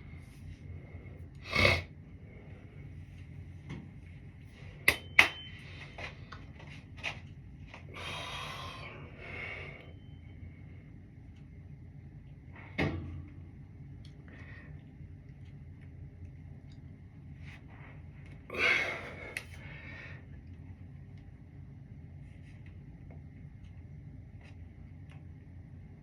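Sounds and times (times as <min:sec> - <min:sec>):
steady low hum: 0:00.0 - 0:26.0
faint high whine: 0:07.8 - 0:12.6.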